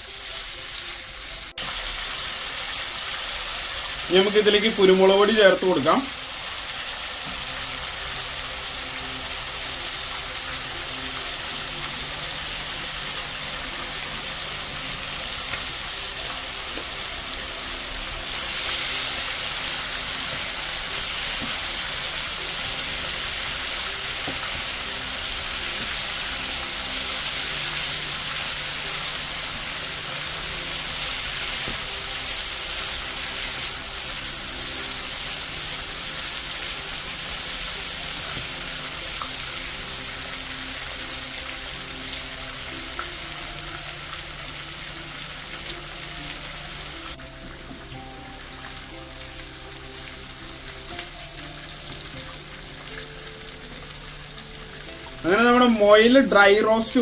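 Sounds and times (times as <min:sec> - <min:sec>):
meat sizzling in frying pan: 0:00.0 - 0:57.0.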